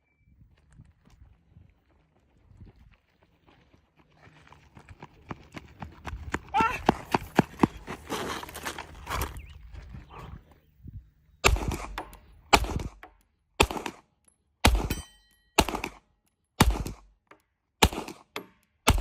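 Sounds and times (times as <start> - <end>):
gunshots with echo: 11.4 - 13.0, 13.6 - 14.0, 14.6 - 16.0, 16.6 - 17.1, 17.8 - 19.0
faint metallic ring: 15.0 - 15.6.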